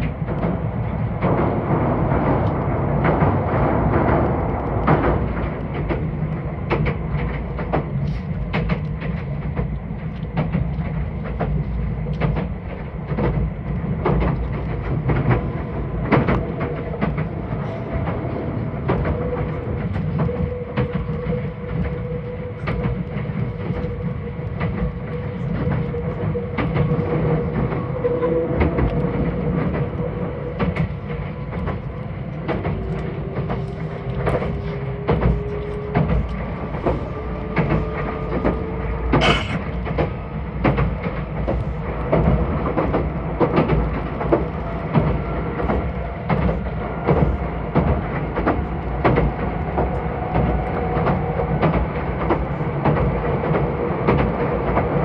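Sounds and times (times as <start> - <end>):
train cabin low rumble: 0.0 - 55.0.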